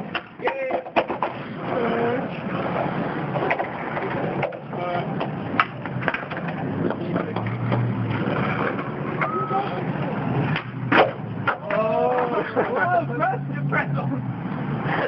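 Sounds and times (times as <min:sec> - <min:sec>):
skateboard clacks: 0:00.0 - 0:12.9
skateboard wheels rolling on concrete: 0:00.0 - 0:15.0
people shouting: 0:09.1 - 0:10.2, 0:11.6 - 0:13.0.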